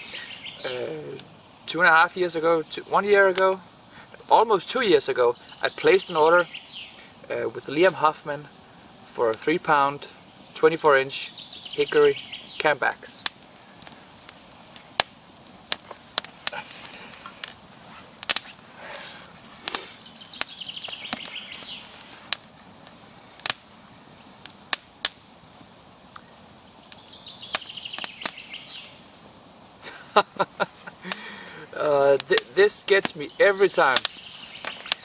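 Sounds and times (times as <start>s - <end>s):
rapid high bird notes: 9.4s - 13.5s.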